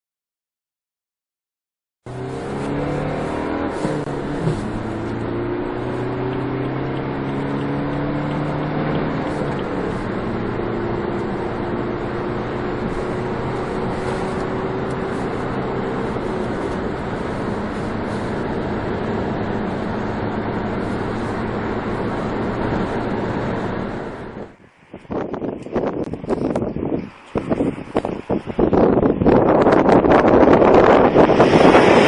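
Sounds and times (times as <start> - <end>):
diesel engine accelerating: 2.1 - 24.6, 26.0 - 32.0
road and tyre noise: 2.1 - 32.0
gear change clunk: 2.5 - 24.5.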